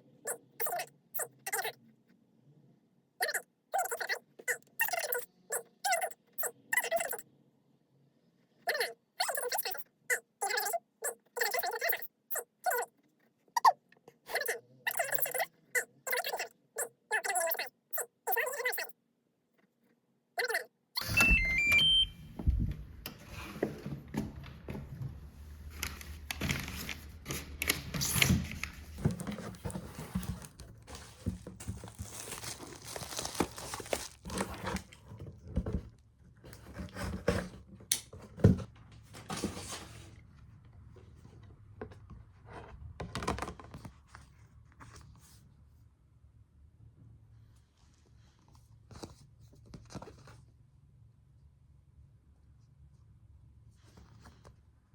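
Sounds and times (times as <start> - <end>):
electronic beeps stepping in pitch: 21.0 - 22.3
rustling: 25.6 - 35.0.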